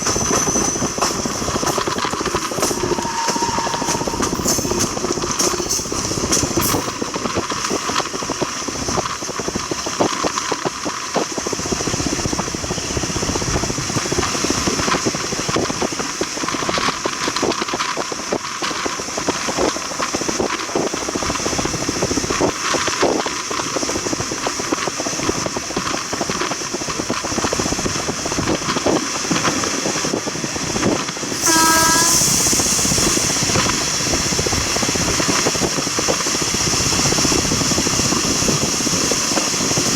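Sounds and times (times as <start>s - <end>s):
train rumbling on track: 0.0s - 39.9s
brief pitched tone: 2.6s - 5.9s, 31.4s - 32.4s
loud hissing noise: 31.3s - 39.2s.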